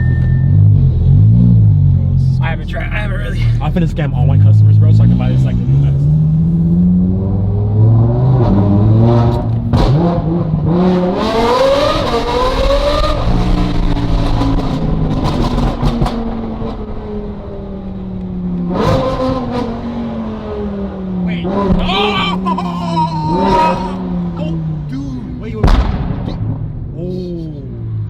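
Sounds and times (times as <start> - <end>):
sports car engine revving: 0.0 - 21.9.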